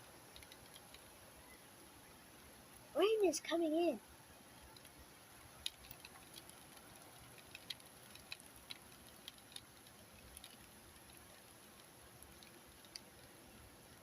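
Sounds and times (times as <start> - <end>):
faint steady hiss: 0.0 - 14.0
raindrops tapping on hard surface: 4.6 - 13.4.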